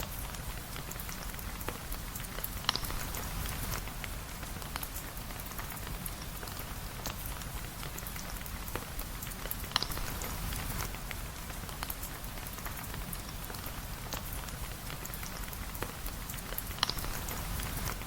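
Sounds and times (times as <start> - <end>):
steady rain hiss: 0.0 - 18.0
sharp ticks and pops: 1.0 - 7.3, 8.0 - 13.0, 15.0 - 18.0.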